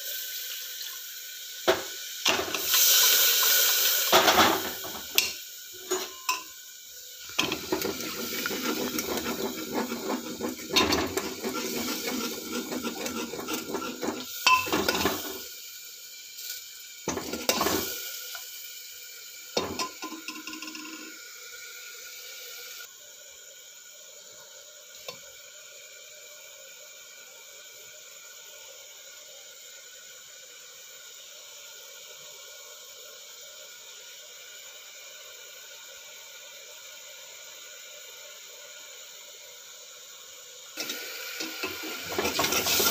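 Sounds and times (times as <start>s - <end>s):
faint steady hiss: 0.0s - 9.1s
utensils clinking: 5.2s - 6.5s
metal spoon scraping in pot: 7.4s - 15.3s.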